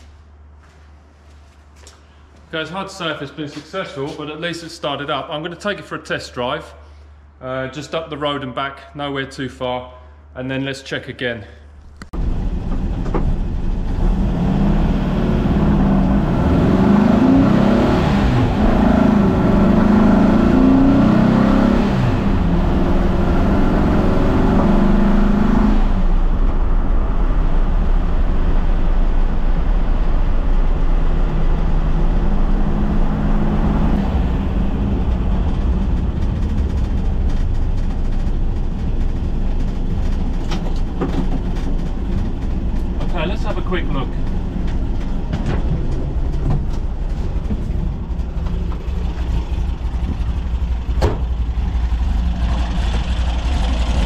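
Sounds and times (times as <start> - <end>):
car engine accelerating: 12.0 - 54.0.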